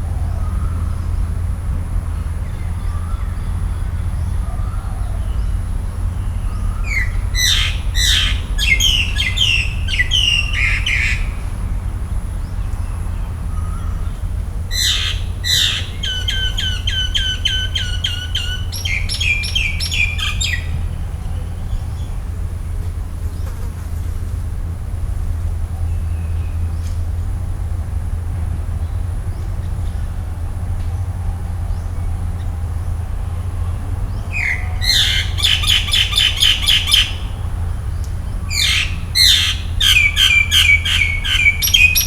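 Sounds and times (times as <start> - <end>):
steady low rumble: 0.0 - 42.0.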